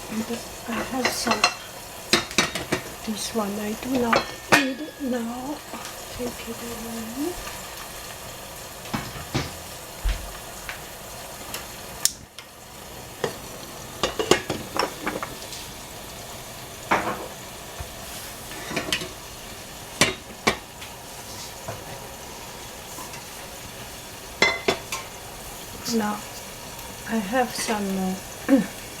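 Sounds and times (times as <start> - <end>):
food sizzling in hot oil: 0.0 - 29.0
utensils knocking against pan: 0.7 - 3.0, 3.9 - 5.9, 8.9 - 9.6, 14.0 - 15.4, 16.9 - 19.2, 20.0 - 20.7, 24.4 - 25.2.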